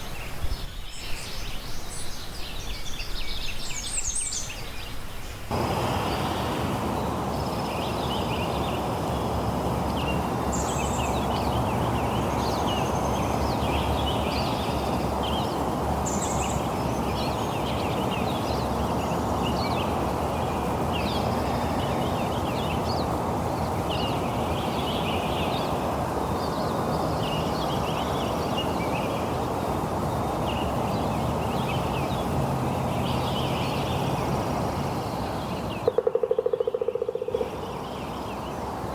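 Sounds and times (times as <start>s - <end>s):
birds chirping: 0.0s - 38.9s
steady rain: 5.4s - 35.8s.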